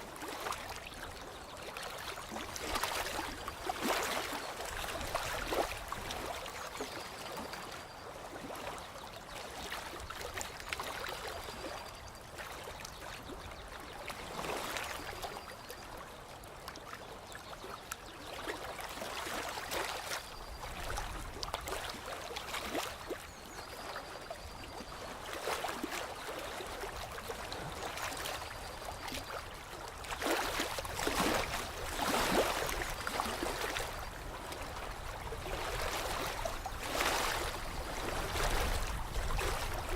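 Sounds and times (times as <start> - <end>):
water lapping and trickling: 0.0 - 39.9
water splashing: 30.0 - 33.9.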